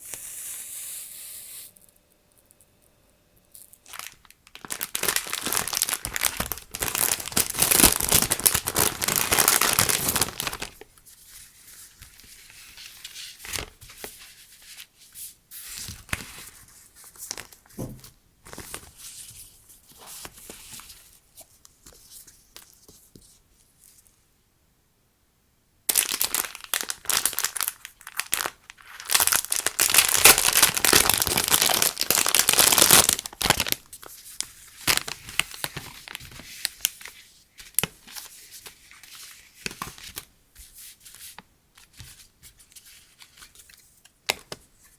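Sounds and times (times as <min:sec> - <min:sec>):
crinkly packaging crackling: 0:03.5 - 0:14.9, 0:15.7 - 0:21.9, 0:25.9 - 0:40.3.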